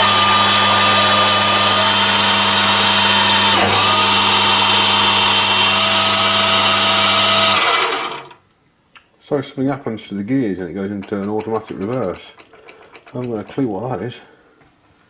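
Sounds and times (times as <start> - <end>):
lathe motor whine: 0.0 - 8.4.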